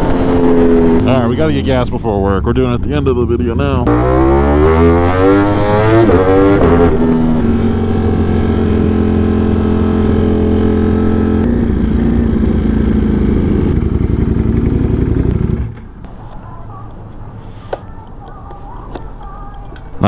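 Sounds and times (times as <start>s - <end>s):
motorcycle engine idling: 11.5s - 20.0s.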